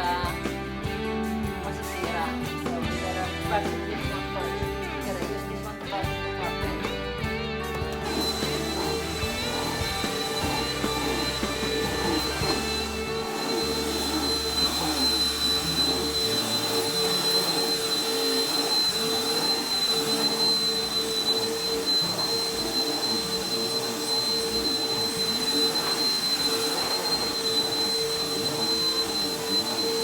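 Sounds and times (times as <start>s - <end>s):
vacuum cleaner running on carpet: 0.0s - 7.0s, 7.6s - 30.0s.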